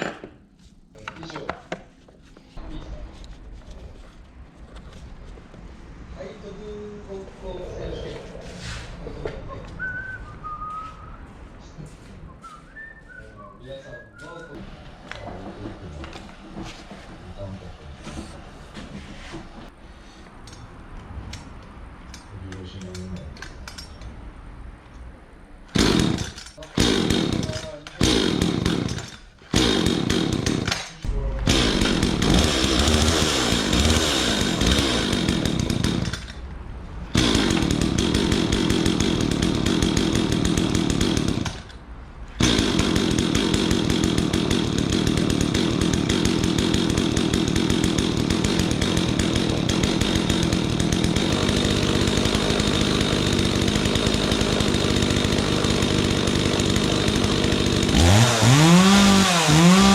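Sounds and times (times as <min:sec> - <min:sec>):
chainsaw engine running: 0:25.8 - 0:36.4, 0:37.1 - 0:41.8, 0:42.4 - 0:59.9.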